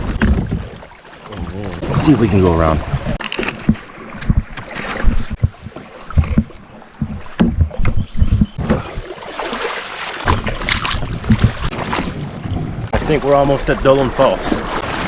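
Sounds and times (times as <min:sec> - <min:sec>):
knocks and thumps: 0:00.0 - 0:01.8, 0:02.8 - 0:09.1, 0:10.3 - 0:12.2
paddle strokes splashing: 0:00.0 - 0:15.0.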